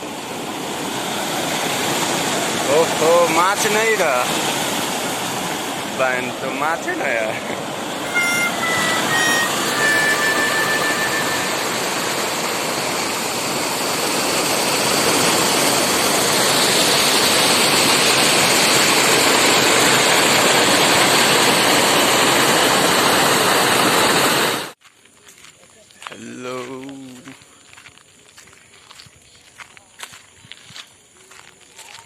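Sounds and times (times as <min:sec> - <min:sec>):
river water rushing: 0:00.0 - 0:24.7
short high tones: 0:08.0 - 0:13.5.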